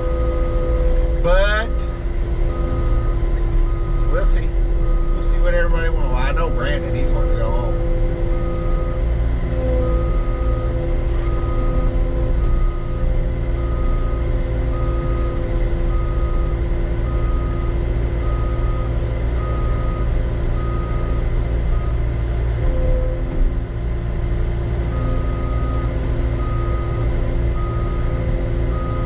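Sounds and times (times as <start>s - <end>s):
diesel engine running: 0.0s - 29.0s
backup alarm beeping: 2.5s - 9.0s, 9.6s - 13.0s.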